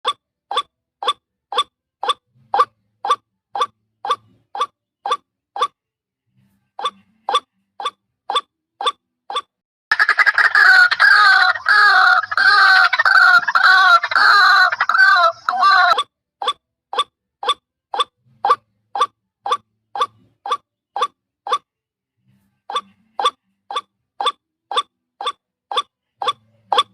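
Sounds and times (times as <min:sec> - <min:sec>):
waterhen croaking call: 0:09.9 - 0:16.0.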